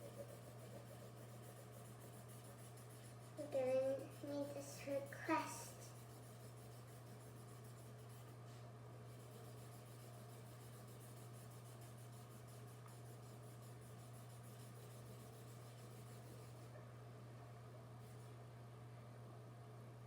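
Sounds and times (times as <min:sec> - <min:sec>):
pencil scratching on paper: 0:00.0 - 0:16.7
low electrical hum: 0:00.0 - 0:20.0.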